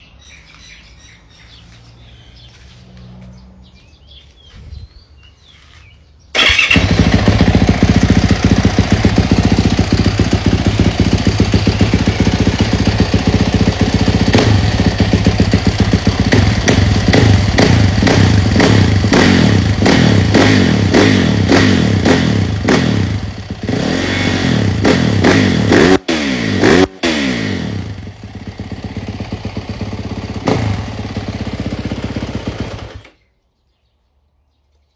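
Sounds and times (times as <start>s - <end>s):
faint outdoor background: 0.0s - 34.9s
motorcycle engine revving: 1.3s - 4.5s, 5.5s - 33.2s
engine bouncing off rev limiter: 6.4s - 33.2s.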